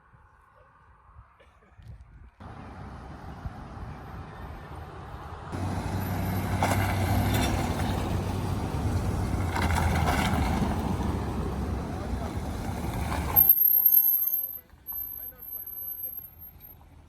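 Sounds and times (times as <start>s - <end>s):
diesel truck engine running: 2.4s - 13.5s.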